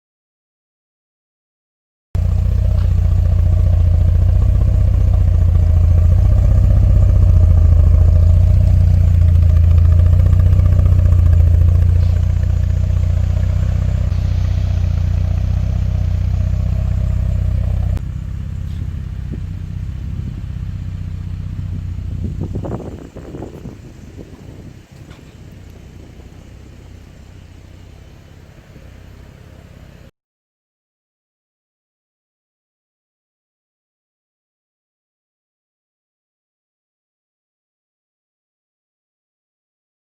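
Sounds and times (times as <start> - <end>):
car engine running: 2.2 - 30.1.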